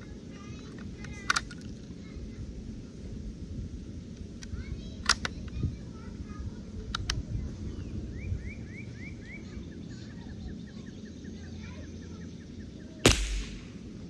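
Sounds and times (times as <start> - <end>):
rifle shot: 13.1 - 13.9.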